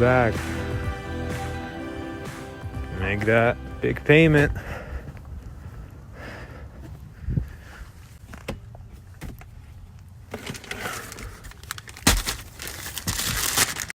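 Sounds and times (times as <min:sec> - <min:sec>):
close rustling and crackling: 0:07.6 - 0:14.0.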